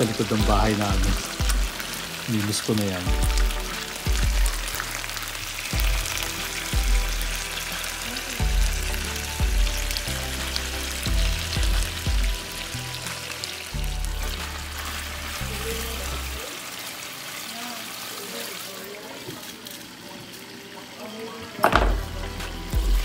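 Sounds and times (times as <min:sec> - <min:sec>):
background music with bass and beat: 0:00.0 - 0:02.2, 0:03.1 - 0:05.2, 0:05.8 - 0:14.8, 0:21.7 - 0:23.0
chicken sizzling in a frying pan: 0:00.0 - 0:23.0.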